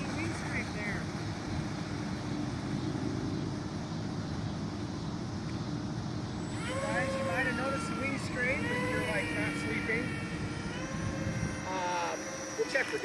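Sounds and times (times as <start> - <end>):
faint steady hum: 0.0 - 13.0
wind buffeting microphone: 0.0 - 13.0.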